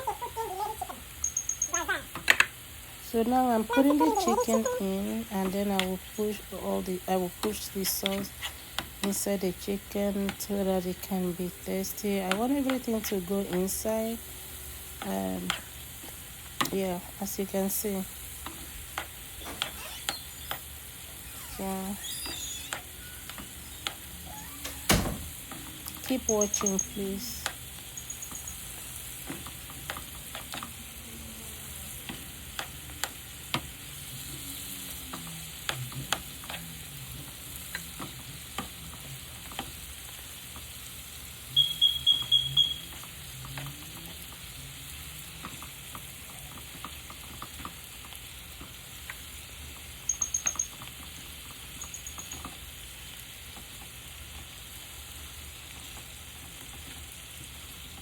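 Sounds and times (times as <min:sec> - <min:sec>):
food sizzling in a pan: 0:00.0 - 0:58.0
loud electronic beeps: 0:01.2 - 0:01.9, 0:19.5 - 0:20.7, 0:21.3 - 0:23.8, 0:26.2 - 0:27.2, 0:27.9 - 0:28.7, 0:41.6 - 0:42.9, 0:50.1 - 0:50.8, 0:51.8 - 0:52.4
short high beeps: 0:01.2 - 0:02.0, 0:26.2 - 0:27.2, 0:27.9 - 0:28.7, 0:41.6 - 0:42.9, 0:50.1 - 0:50.8, 0:51.8 - 0:52.4
utensil clicking against pan: 0:29.2 - 0:30.8, 0:32.0 - 0:33.7, 0:35.1 - 0:36.7.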